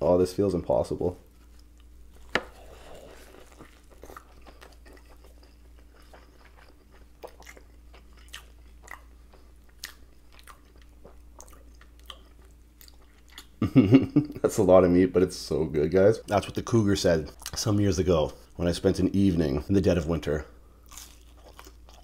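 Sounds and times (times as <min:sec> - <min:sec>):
lettuce crunching: 0:01.3 - 0:13.5, 0:20.8 - 0:22.0
chewing with wet clicks: 0:03.3 - 0:13.6, 0:20.8 - 0:22.0.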